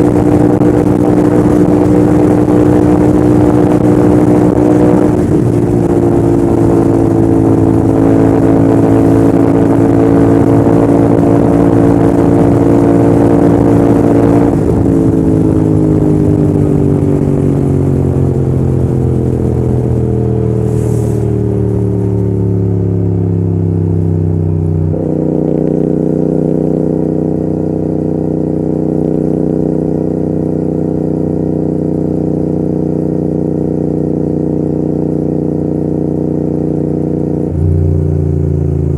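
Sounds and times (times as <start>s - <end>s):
wind rush: 0.0s - 22.5s
motorcycle engine running: 0.0s - 38.9s.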